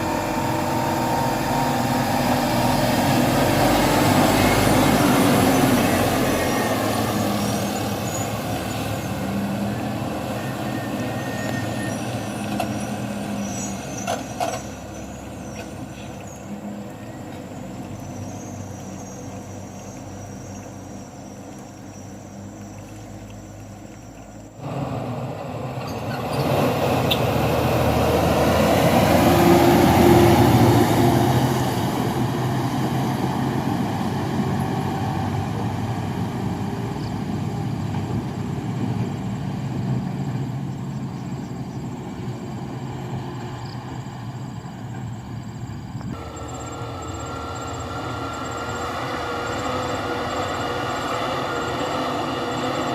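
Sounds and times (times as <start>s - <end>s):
truck diesel engine labouring: 0.0s - 52.9s.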